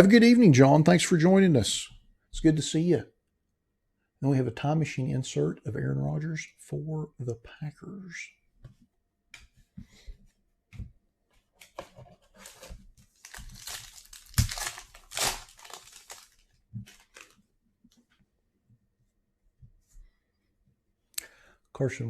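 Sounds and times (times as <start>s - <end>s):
cards being handled: 11.4s - 17.4s
wrapper being torn and crinkled: 12.4s - 17.4s.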